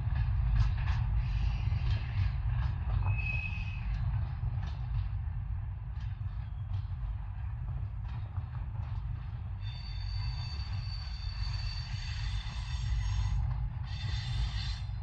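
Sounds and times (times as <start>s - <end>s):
freight train rumbling past: 0.0s - 15.0s
high wheel squeal: 9.6s - 15.0s.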